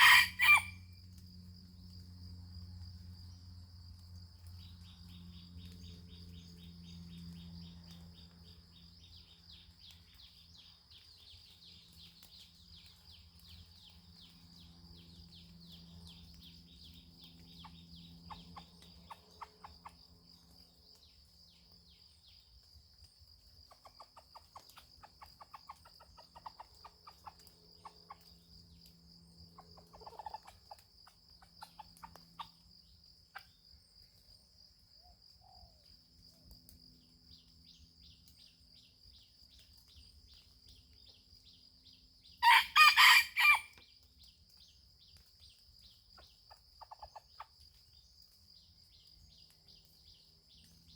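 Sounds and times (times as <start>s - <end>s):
junglefowl clucking: 0.0s - 0.8s, 42.4s - 43.7s.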